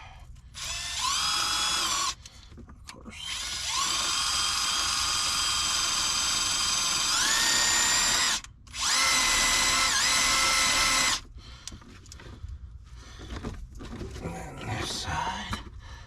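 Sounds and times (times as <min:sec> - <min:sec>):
power drill motor whining: 0:00.6 - 0:02.2, 0:03.2 - 0:11.3.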